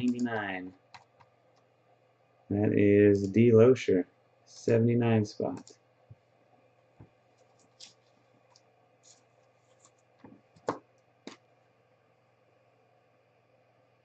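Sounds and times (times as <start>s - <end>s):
trading cards clicking and tapping: 9.8s - 11.4s.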